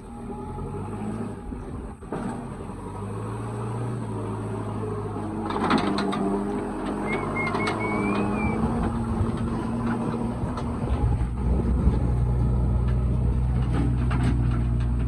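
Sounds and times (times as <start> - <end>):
diesel engines running: 0.0 - 15.0
wavering high whistle-like tone: 7.0 - 8.6.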